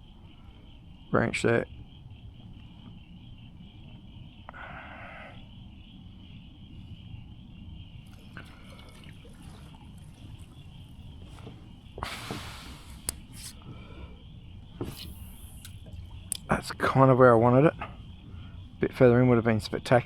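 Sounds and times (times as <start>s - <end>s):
water lapping around kayak: 5.4s - 20.0s
water drips: 7.9s - 20.0s.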